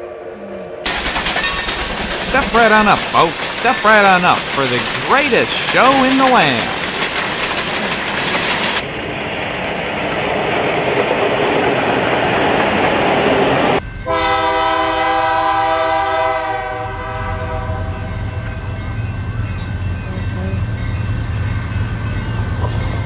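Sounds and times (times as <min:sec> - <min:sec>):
train clattering on rails: 0:00.9 - 0:09.0, 0:17.6 - 0:23.0
multi-note train horn: 0:14.0 - 0:18.2.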